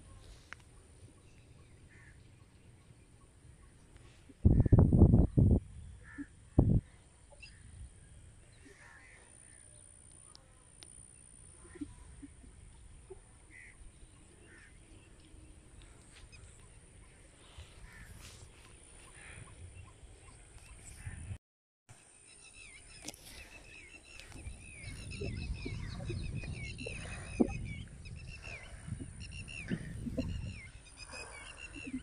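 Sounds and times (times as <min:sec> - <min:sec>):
birds chirping: 0:00.0 - 0:21.4, 0:22.0 - 0:32.0
wind rumble on microphone: 0:04.3 - 0:08.4, 0:24.1 - 0:32.0.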